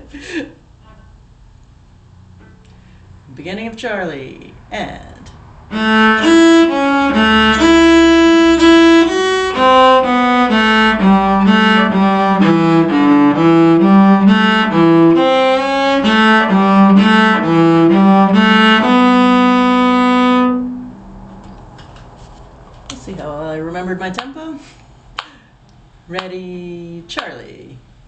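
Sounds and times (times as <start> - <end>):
fiddle tune: 5.7 - 20.9.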